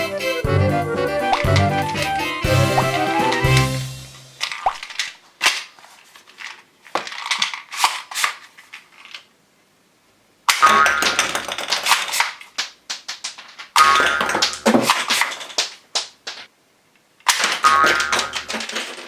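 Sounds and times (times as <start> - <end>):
toy gun shooting pops: 10.5 - 16.5, 17.3 - 18.6.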